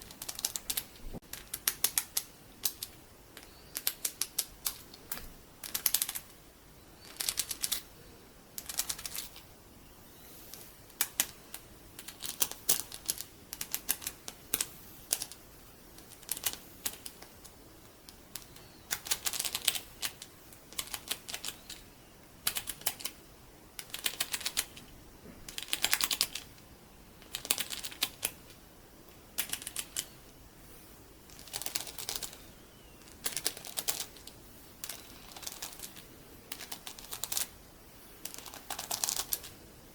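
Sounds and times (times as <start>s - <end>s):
beads clicking: 31.3s - 37.6s, 38.2s - 39.6s.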